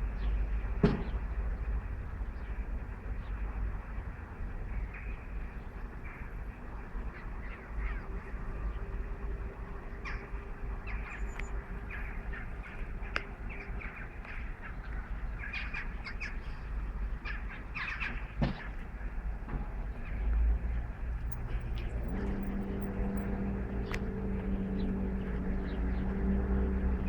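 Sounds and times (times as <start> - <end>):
wind rumble on microphone: 0.0 - 27.0
birds squawking and chirping: 5.8 - 19.2, 19.9 - 27.0.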